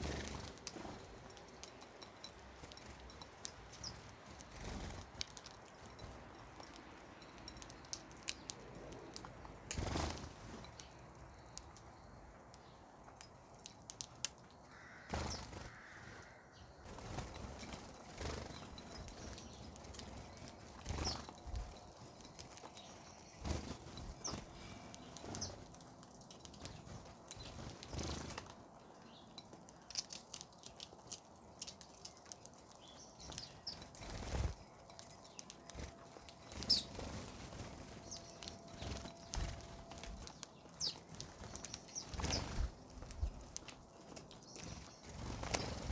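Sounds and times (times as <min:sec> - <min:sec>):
birds chirping: 0:00.0 - 0:45.9
wings flapping: 0:09.7 - 0:10.4, 0:15.0 - 0:16.0, 0:16.9 - 0:25.8, 0:26.4 - 0:28.6, 0:35.7 - 0:45.9.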